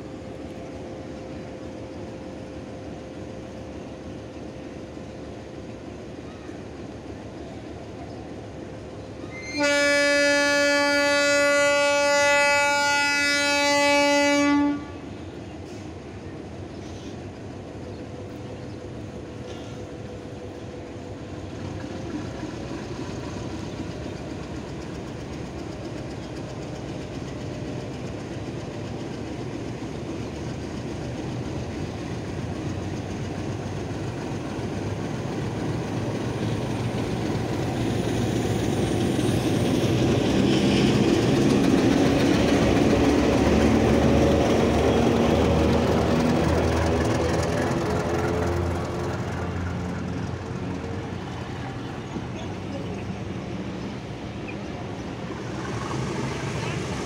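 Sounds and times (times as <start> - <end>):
locomotive engine and train running: 0.0 - 57.0
locomotive horn blast: 9.3 - 15.2.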